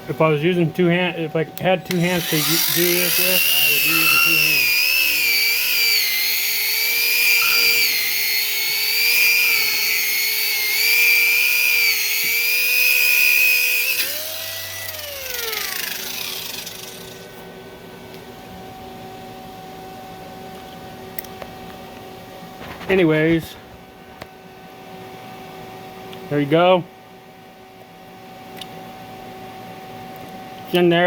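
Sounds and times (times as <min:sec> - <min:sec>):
angle grinder whining: 0:01.6 - 0:17.4.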